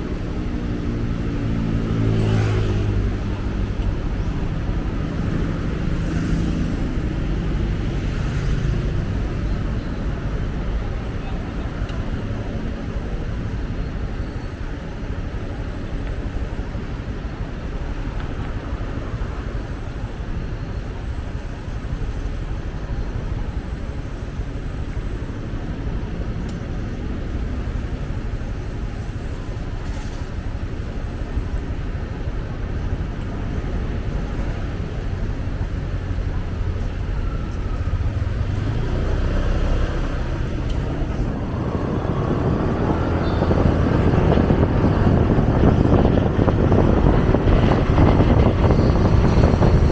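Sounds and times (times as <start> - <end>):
surrounding traffic: 0.0 - 49.9
wind on microphone: 30.6 - 49.9
motorcycle engine: 31.6 - 49.9.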